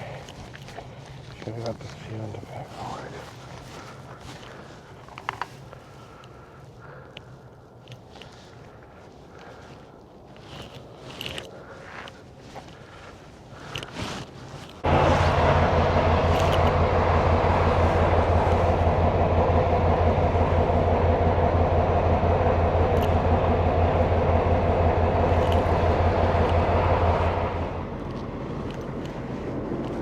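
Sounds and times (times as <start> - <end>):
truck diesel engine droning: 14.7 - 30.0.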